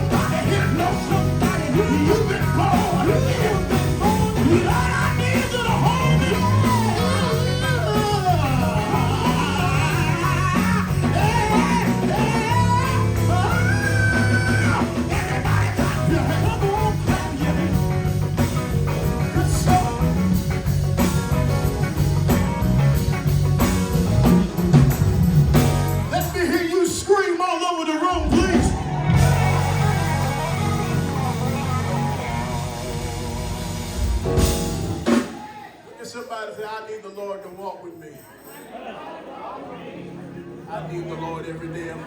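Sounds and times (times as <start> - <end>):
person singing: 0.0 - 18.0
band playing guitar bass drums: 0.0 - 27.1, 28.1 - 35.8.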